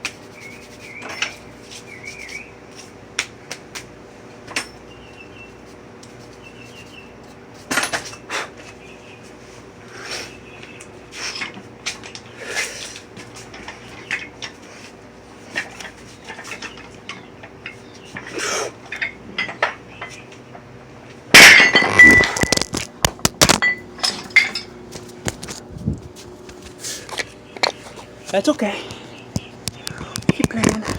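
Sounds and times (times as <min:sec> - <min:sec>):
weight plates crashing down: 0:21.3 - 0:22.6.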